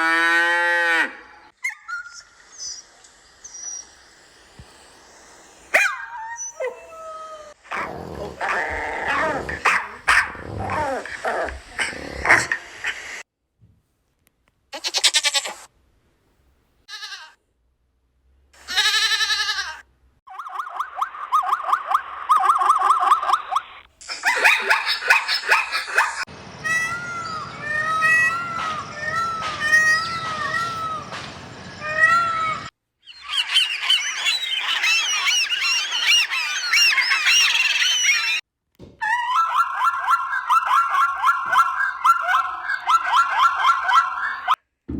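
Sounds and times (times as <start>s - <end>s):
farm animal bleating: 16.9s - 17.4s, 18.6s - 19.8s
flock of birds chirping: 24.1s - 38.4s, 39.4s - 44.6s.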